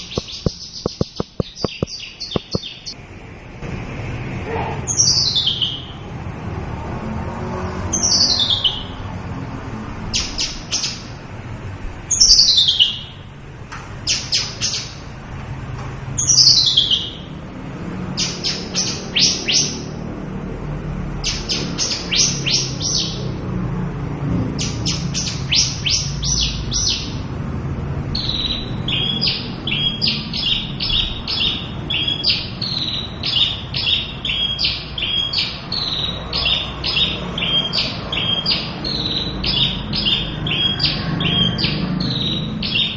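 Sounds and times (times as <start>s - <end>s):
bird singing: 0.0s - 3.0s, 4.9s - 6.0s, 7.9s - 9.0s, 10.1s - 11.2s, 12.1s - 13.3s, 14.1s - 15.0s, 16.2s - 17.4s, 18.1s - 20.0s, 21.2s - 23.4s, 24.5s - 27.2s, 28.1s - 42.9s.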